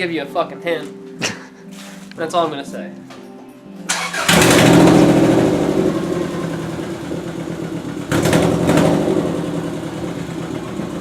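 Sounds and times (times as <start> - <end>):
car engine idling and revving: 3.9 - 11.0.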